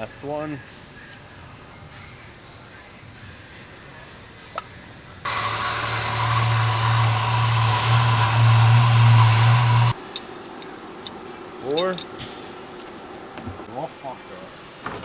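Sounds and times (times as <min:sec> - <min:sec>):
shop vacuum running: 0:05.2 - 0:10.0.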